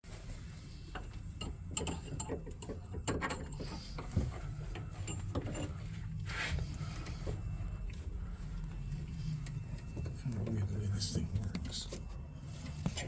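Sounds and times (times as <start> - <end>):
low hum: 2.8 - 13.0.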